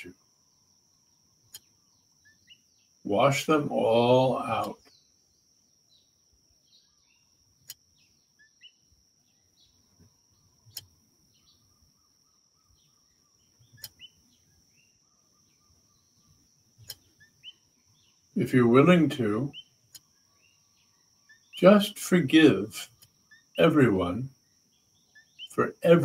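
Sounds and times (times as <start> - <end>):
faint bird chirps: 0.0 - 26.0.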